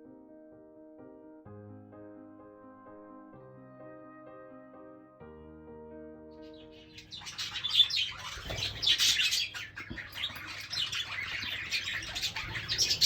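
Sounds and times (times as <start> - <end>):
piano music: 0.0 - 13.0
budgerigars chattering: 6.4 - 13.0.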